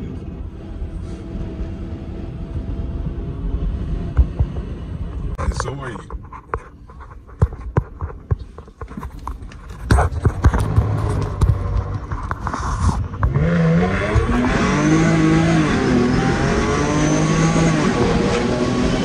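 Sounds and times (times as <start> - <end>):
car engine accelerating: 0.0 - 5.4, 10.1 - 19.0
phone rubbing against clothing: 12.0 - 13.2.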